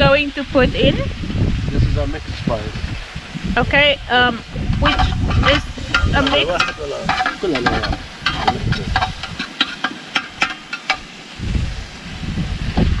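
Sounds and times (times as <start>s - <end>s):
food sizzling: 0.0s - 13.0s
spoon scraping in pot: 3.0s - 11.3s
metal on metal clicks: 4.7s - 11.2s.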